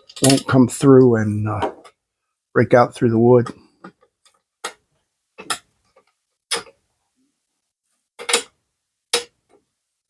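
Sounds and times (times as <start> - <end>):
sharp clicks and knocks: 3.4 - 6.8, 8.2 - 9.7.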